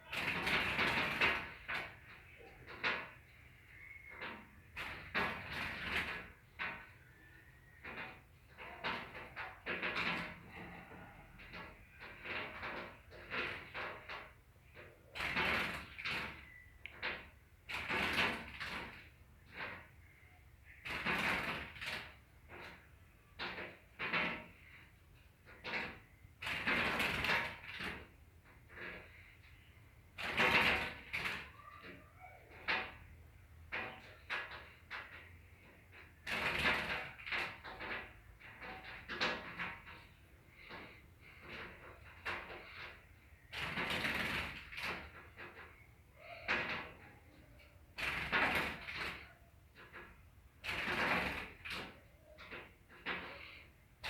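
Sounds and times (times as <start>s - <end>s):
bird fluttering and scrabbling: 0.1s - 3.3s, 4.1s - 7.0s, 7.8s - 31.9s, 33.7s - 47.1s, 47.9s - 54.0s.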